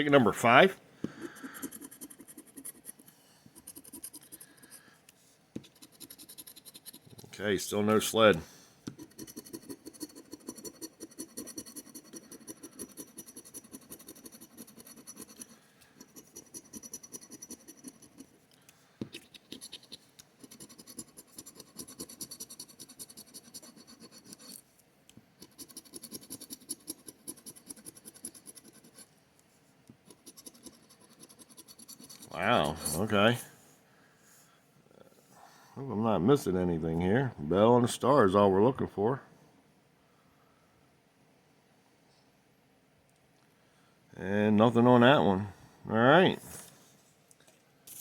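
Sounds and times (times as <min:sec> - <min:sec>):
scratching lottery ticket: 0:01.2 - 0:04.9, 0:05.6 - 0:18.5, 0:19.1 - 0:24.6, 0:25.4 - 0:29.1, 0:30.0 - 0:33.2.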